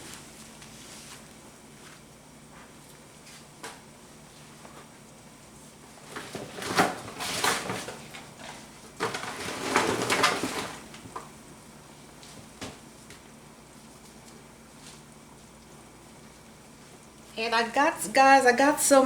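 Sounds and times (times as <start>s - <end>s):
kitchen handling and clatter: 6.1s - 11.3s.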